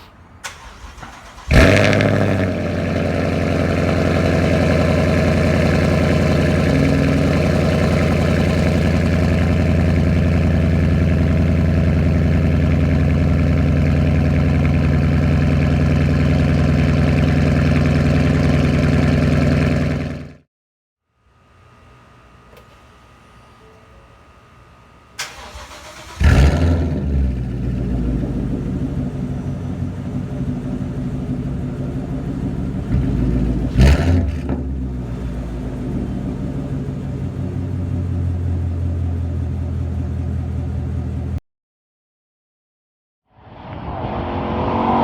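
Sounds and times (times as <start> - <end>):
car engine cold idle: 0.4 - 20.3, 25.2 - 33.8, 34.4 - 41.4.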